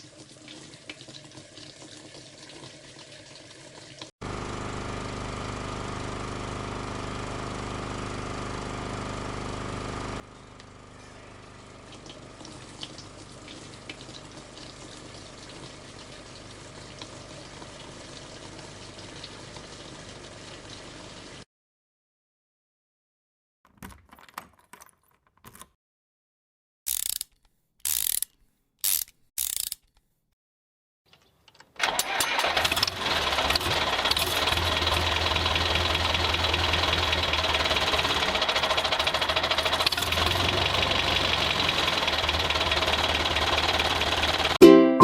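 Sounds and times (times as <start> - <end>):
music: 44.6 - 45.0.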